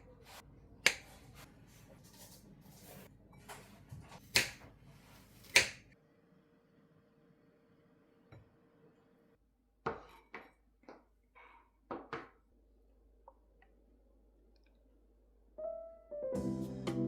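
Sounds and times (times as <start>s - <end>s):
background music: 15.6s - 17.0s.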